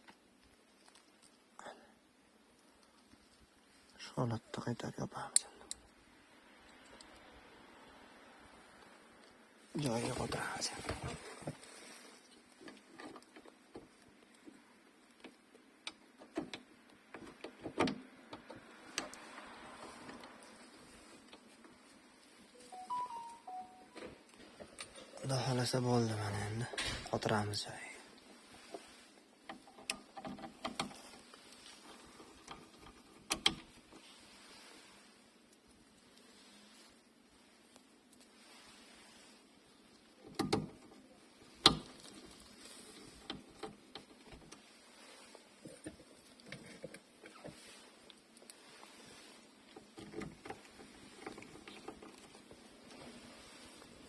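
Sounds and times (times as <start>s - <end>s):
sunroof parts clicking: 15.2s - 19.3s, 29.4s - 31.4s, 32.2s - 33.9s, 40.2s - 44.7s.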